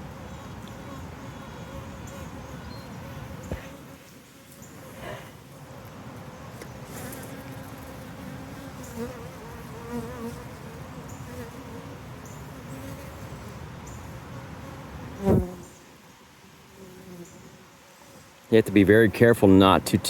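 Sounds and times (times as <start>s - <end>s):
bees buzzing: 0.2s - 13.6s, 14.4s - 15.8s.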